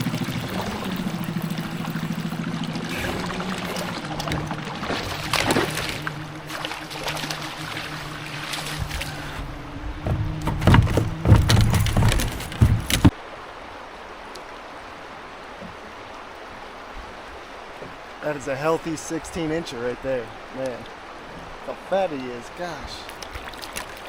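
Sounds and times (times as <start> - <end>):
steady low hum: 0.0 - 13.1
water splashing: 0.0 - 13.2, 23.0 - 24.0
hollow knocks on plastic hull: 8.8 - 13.1.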